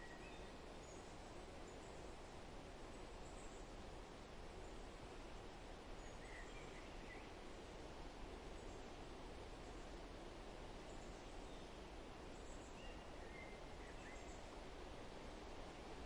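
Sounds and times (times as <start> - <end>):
faint bird chirps: 0.0 - 2.1, 6.0 - 7.4, 12.4 - 14.5
soft steady hiss: 0.0 - 16.0.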